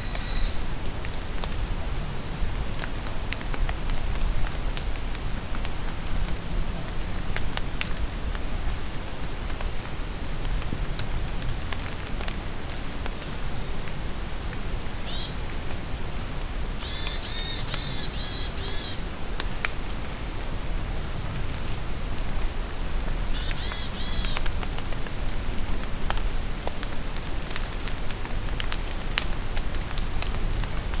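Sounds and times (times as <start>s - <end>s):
rain falling in forest: 0.0s - 31.0s
raindrops ticking: 21.5s - 31.0s.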